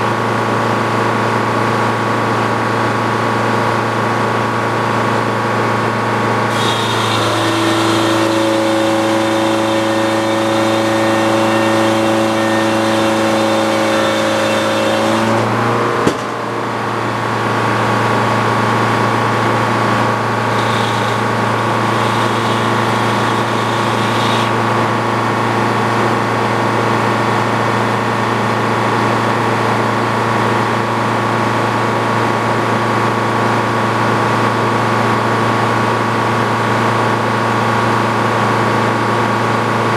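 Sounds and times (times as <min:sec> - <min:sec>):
sawmill machinery drone: 0:00.0 - 0:39.9
sharp knock: 0:16.0 - 0:16.4.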